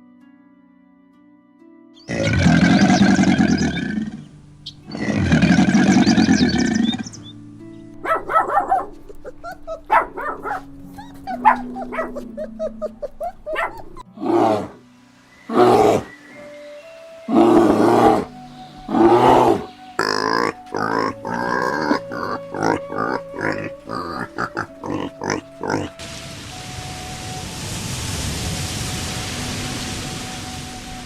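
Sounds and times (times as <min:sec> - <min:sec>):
background music with held notes: 0:00.0 - 0:31.0
tiger roar: 0:02.1 - 0:04.3, 0:04.9 - 0:07.2, 0:14.1 - 0:14.8, 0:15.5 - 0:16.1, 0:17.3 - 0:18.3, 0:18.9 - 0:26.0
long loud animal calls: 0:02.1 - 0:07.3, 0:15.5 - 0:16.1, 0:17.3 - 0:18.3, 0:18.9 - 0:26.0.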